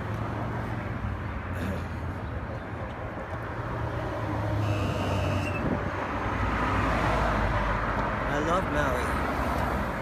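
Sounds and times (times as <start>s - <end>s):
brief high squeal: 4.6s - 5.7s.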